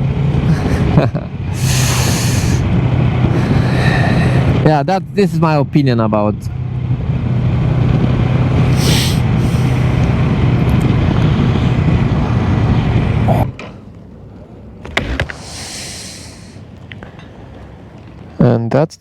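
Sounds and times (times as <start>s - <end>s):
motorcycle engine hum: 0.0s - 18.7s
wind noise on microphone: 6.6s - 13.6s
short hiss: 8.7s - 9.8s, 15.1s - 16.6s.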